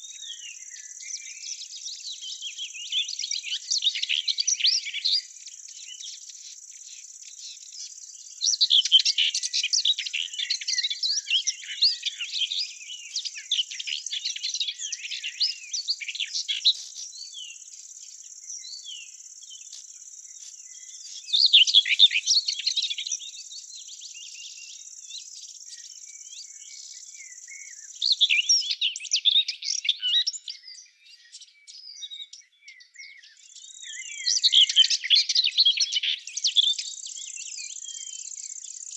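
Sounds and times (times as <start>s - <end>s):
songbirds twittering: 0.0s - 38.9s.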